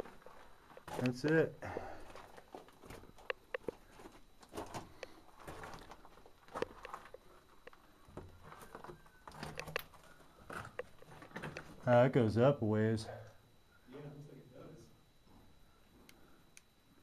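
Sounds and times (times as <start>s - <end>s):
footsteps on rocky floor: 0.0s - 11.8s.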